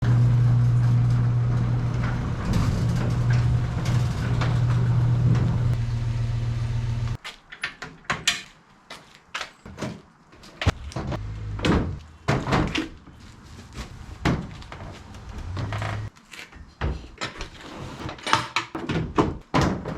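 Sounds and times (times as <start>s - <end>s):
truck engine humming: 0.0s - 7.2s, 10.7s - 12.3s, 14.8s - 16.1s.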